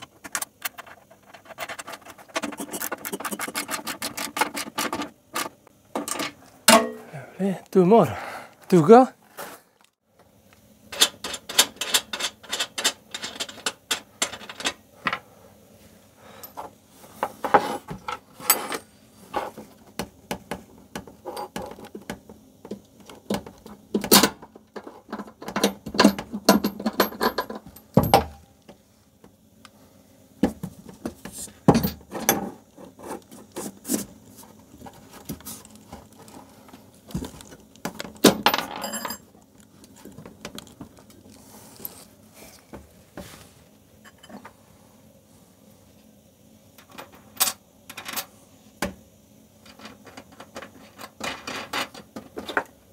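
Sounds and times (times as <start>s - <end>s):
metal parts and tools clinking: 25.1s - 28.3s, 38.2s - 39.3s.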